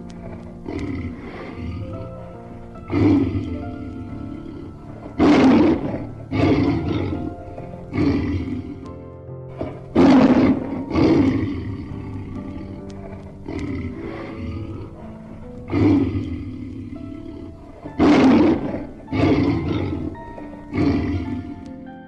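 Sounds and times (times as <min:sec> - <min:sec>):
background music with held notes: 0:00.0 - 0:22.0
loud animal calls: 0:00.1 - 0:21.7.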